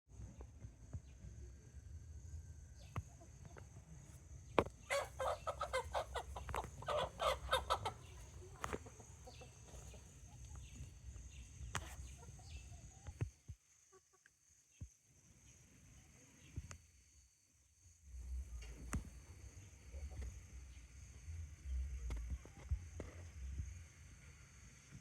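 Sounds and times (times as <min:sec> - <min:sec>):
chicken clucking: 0:04.6 - 0:10.9, 0:11.7 - 0:13.1.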